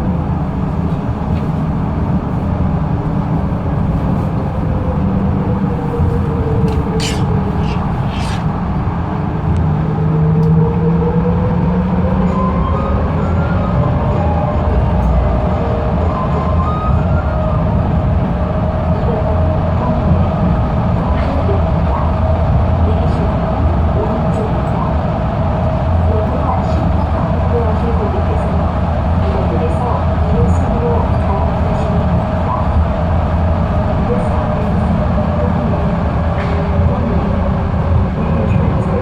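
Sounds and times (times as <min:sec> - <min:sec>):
train rumble: 0:00.0 - 0:39.0
short hisses: 0:06.7 - 0:08.5.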